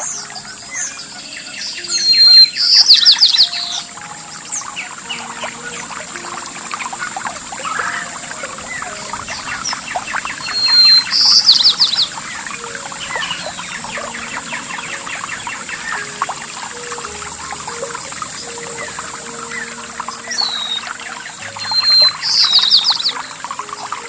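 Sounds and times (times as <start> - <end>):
bird whistled note and trill: 0.0 - 24.0
songbirds chirping and singing: 0.0 - 24.0
trickling water: 0.0 - 24.0.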